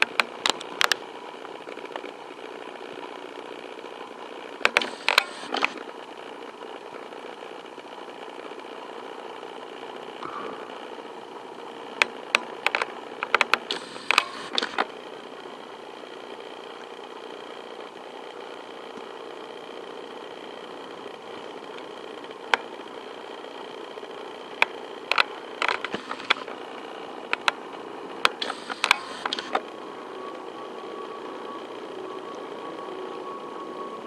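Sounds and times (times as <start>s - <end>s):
sharp clicks: 0.0s - 1.0s, 4.6s - 5.8s, 11.9s - 14.9s, 24.6s - 26.6s, 27.3s - 27.6s, 28.2s - 29.7s
faint whine: 0.0s - 34.0s
jet engines droning: 10.2s - 15.6s, 25.3s - 34.0s.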